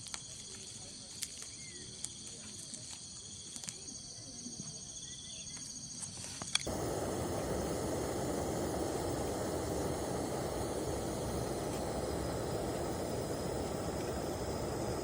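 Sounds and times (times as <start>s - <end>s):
crickets trilling: 0.0s - 15.0s
steady rushing hiss: 6.6s - 15.0s.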